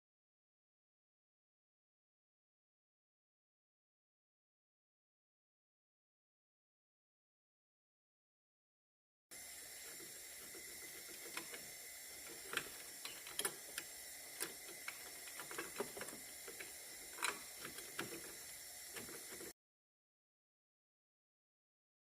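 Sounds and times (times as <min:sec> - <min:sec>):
faint steady hiss: 0:09.3 - 0:19.5
hand tools clicking on metal: 0:10.4 - 0:19.5.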